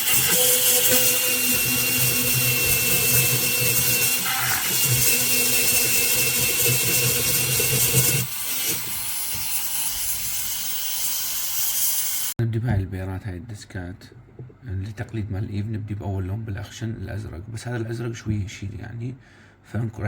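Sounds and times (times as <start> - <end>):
dental drill motor whine: 0.0 - 12.4.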